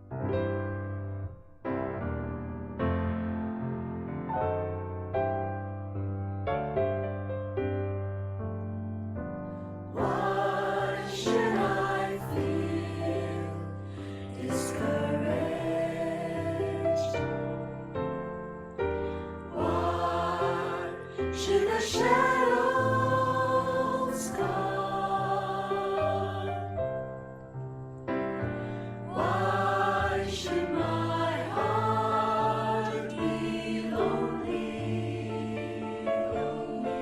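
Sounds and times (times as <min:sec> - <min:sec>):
choir singing: 0:09.9 - 0:18.2, 0:18.8 - 0:27.2, 0:29.1 - 0:37.0.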